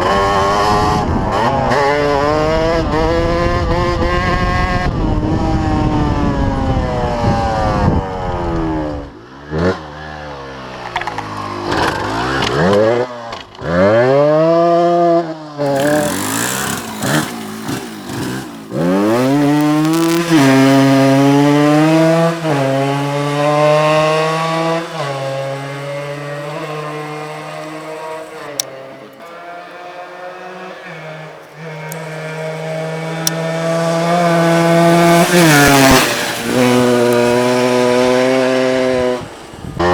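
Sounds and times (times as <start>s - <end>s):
two-stroke engine revving: 15.6s - 39.9s.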